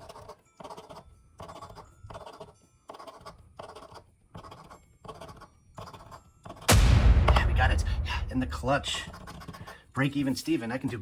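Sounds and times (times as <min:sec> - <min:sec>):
lottery ticket being scratched: 0:00.0 - 0:06.7.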